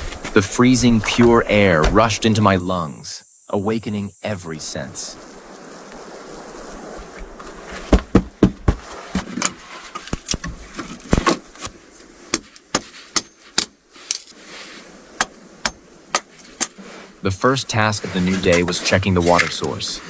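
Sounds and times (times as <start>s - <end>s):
steady hiss: 2.6s - 4.6s.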